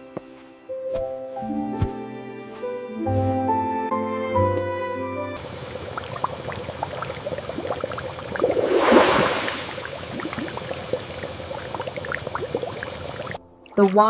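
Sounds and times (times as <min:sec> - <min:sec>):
hot spring water bubbling: 0:05.4 - 0:14.0
rush of water: 0:05.4 - 0:14.0.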